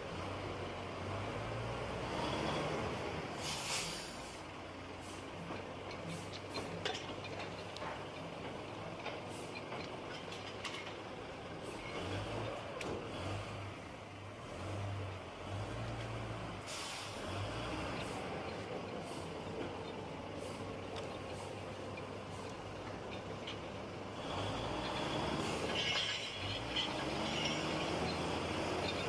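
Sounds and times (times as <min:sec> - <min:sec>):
heavy diesel engine running: 0:00.0 - 0:29.0
air hiss: 0:03.4 - 0:04.4, 0:16.7 - 0:17.2.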